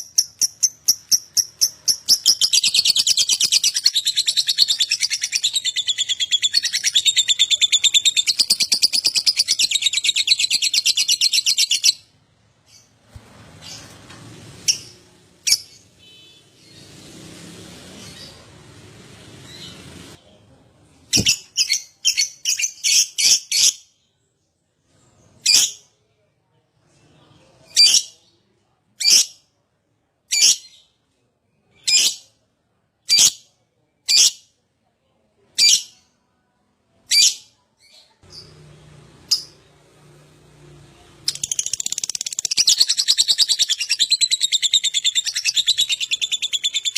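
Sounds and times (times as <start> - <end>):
shrill bird chirps: 0.0 - 13.0, 41.2 - 46.9.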